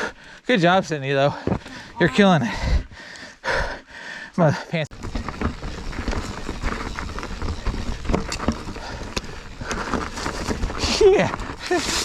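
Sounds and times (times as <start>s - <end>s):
bike clicks and knocks: 5.0s - 12.0s.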